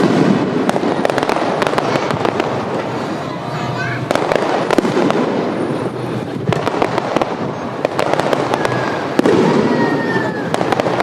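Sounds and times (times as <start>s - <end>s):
firework boom: 0.0s - 3.0s, 4.0s - 11.0s
fireworks bursting and crackling: 0.0s - 11.0s.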